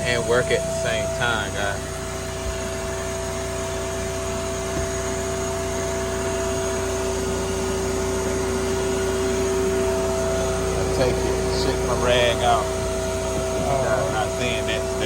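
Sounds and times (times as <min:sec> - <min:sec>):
steady machine drone: 0:00.0 - 0:15.0.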